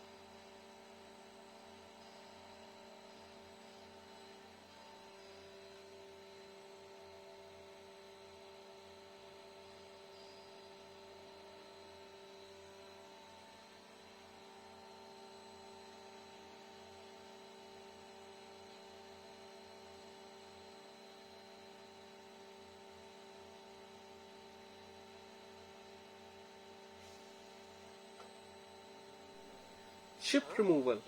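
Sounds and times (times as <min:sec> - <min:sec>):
faint electrical hum: 0:27.0 - 0:31.0.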